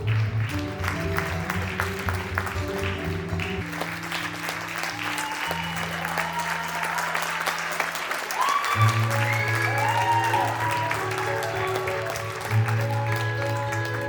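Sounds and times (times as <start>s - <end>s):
background music low notes: 0.0s - 5.9s
audience applauding: 0.0s - 14.0s.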